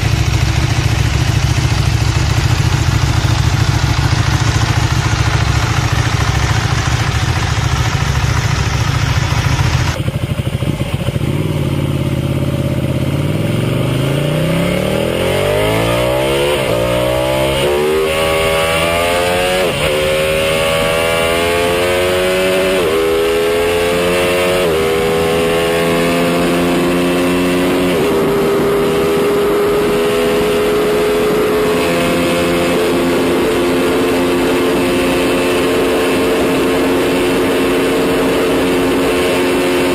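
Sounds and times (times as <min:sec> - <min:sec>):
rough deep engine sound: 0:00.0 - 0:14.9
motorcycle engine accelerating: 0:00.0 - 0:39.9.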